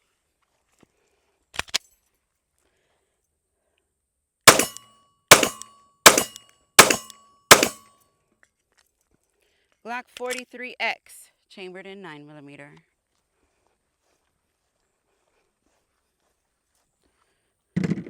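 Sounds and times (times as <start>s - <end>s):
pistol shots: 4.5s - 7.8s
sharp metallic clicks: 4.5s - 7.8s.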